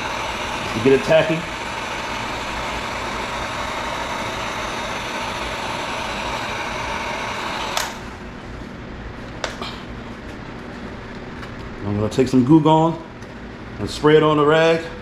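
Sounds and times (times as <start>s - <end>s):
heat gun blowing: 0.0s - 8.4s
heat gun switch click: 7.7s - 8.0s.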